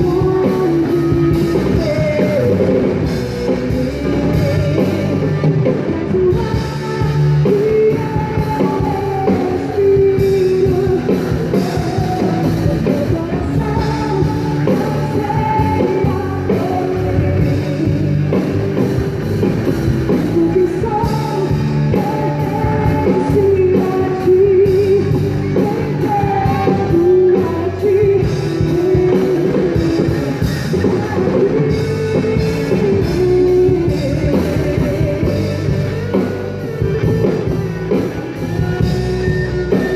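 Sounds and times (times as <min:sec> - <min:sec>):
drum kit: 0:00.0 - 0:39.9
electric guitar: 0:00.0 - 0:39.9
rock worship band playing: 0:00.0 - 0:39.9
wavering lead melody: 0:00.0 - 0:39.9.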